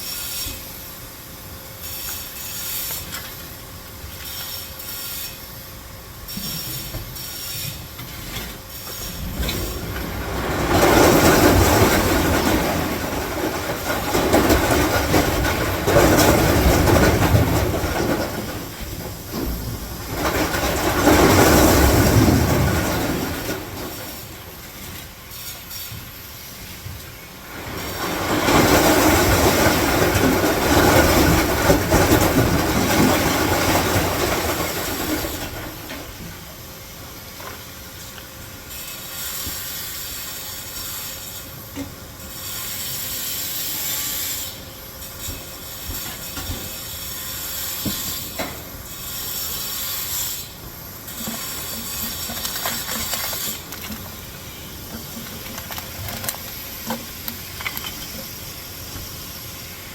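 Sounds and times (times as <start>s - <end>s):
train clattering on rails: 8.3s - 24.4s, 27.5s - 36.5s.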